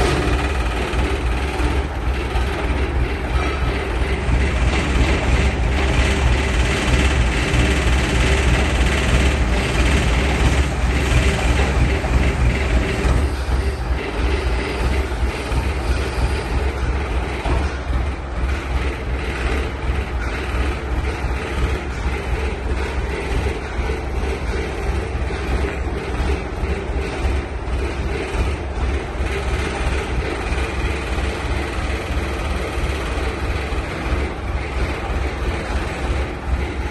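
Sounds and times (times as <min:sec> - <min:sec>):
dense mechanical noise: 0:00.0 - 0:36.9
paver engine rumbling: 0:00.0 - 0:36.9.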